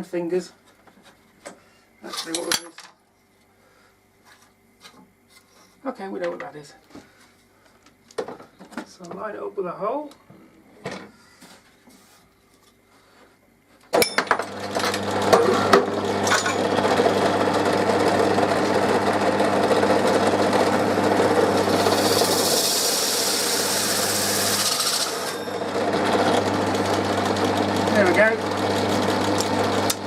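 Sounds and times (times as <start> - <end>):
electric drill motor hum: 14.4 - 30.0
drill bit cutting plastic: 14.7 - 30.0.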